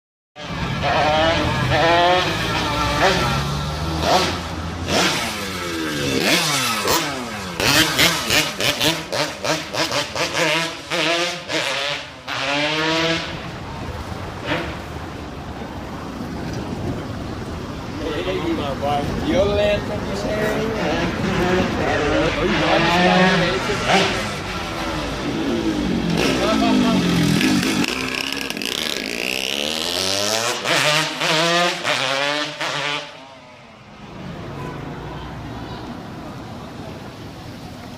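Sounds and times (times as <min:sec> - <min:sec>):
motorcycle engine revving: 0:00.4 - 0:15.1, 0:20.4 - 0:33.3.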